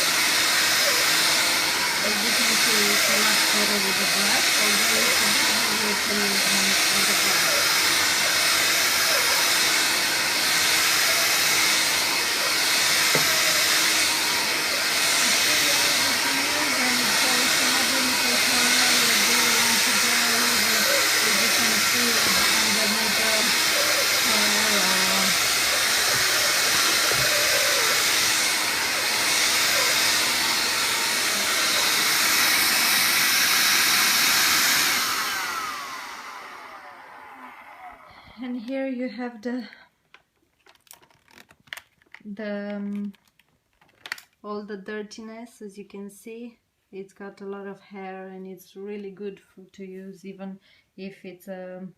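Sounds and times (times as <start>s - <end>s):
vacuum cleaner running: 0.0s - 38.3s.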